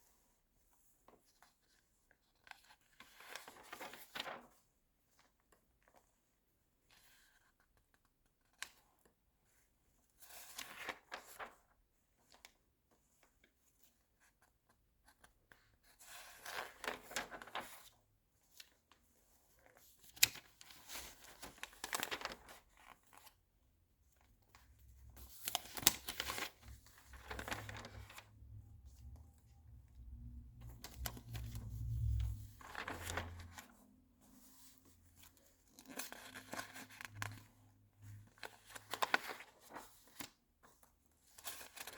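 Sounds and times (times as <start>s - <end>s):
magazine pages turning: 16.1s - 23.4s, 24.1s - 41.9s.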